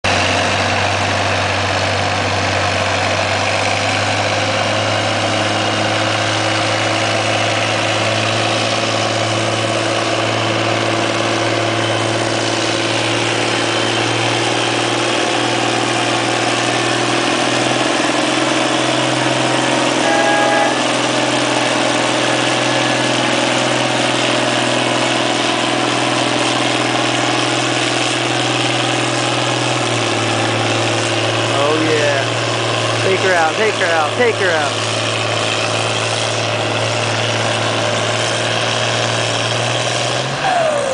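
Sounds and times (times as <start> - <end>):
diesel tractor engine running: 0.0 - 40.9
brief high-pitched tone: 20.0 - 20.9.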